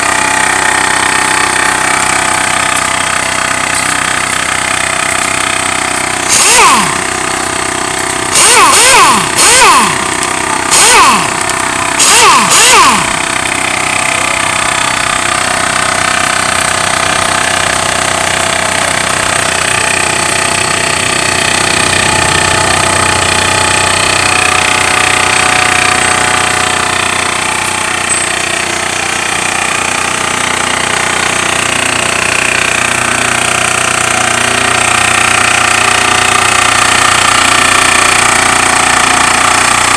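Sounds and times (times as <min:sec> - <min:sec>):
air compressor running: 0:00.0 - 0:39.9
short loud bursts: 0:04.5 - 0:14.1.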